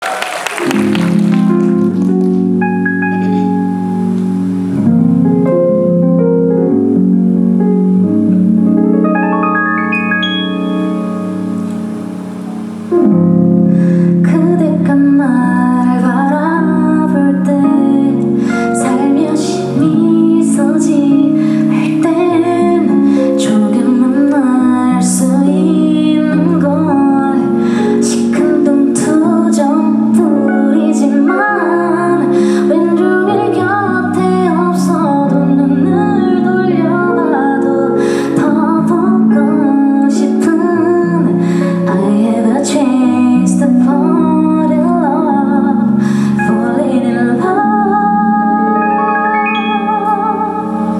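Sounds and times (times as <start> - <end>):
sustained chords: 0.6 - 39.9, 43.1 - 50.9
guitar: 0.6 - 50.9
woman singing: 14.2 - 50.9.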